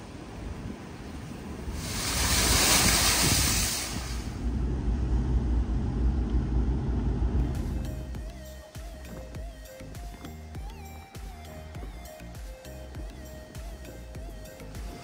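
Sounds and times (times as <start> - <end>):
road noise with tyre hiss: 0.0 - 8.2
water spray hissing from tyres: 1.5 - 4.8.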